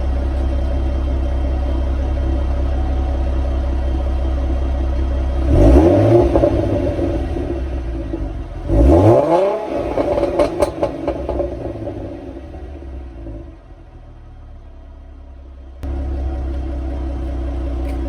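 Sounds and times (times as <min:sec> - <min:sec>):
car engine idling and revving: 0:00.0 - 0:18.0
exhaust crackling pops: 0:09.7 - 0:12.4.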